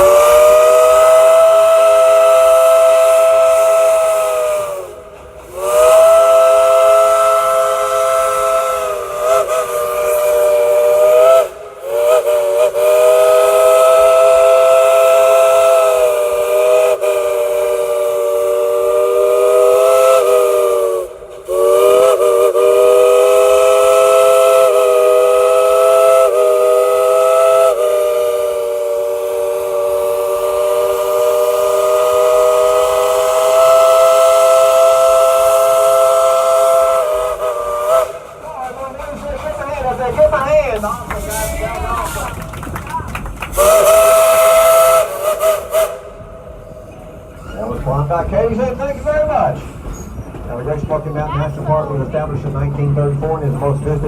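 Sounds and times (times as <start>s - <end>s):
steam locomotive chime whistle: 0.0s - 38.4s, 43.6s - 47.8s.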